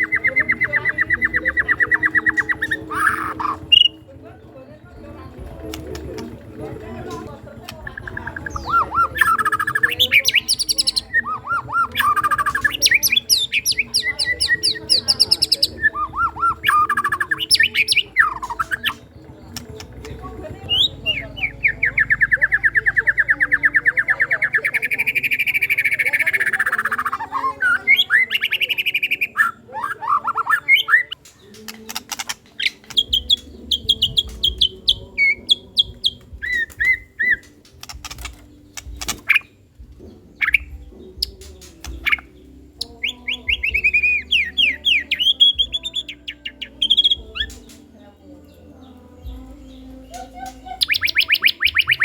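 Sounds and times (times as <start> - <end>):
songbird singing trills and whistles: 0.0 - 52.0.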